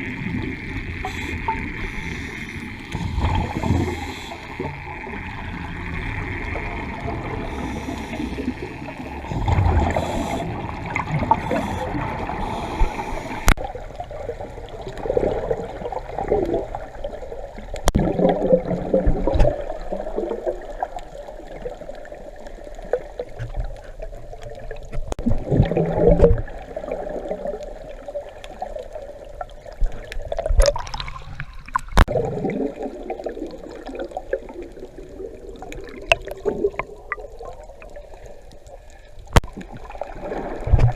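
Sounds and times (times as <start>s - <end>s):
underwater bubbles gurgling: 0.0s - 40.9s
watery hiss: 1.0s - 5.2s, 7.2s - 13.6s.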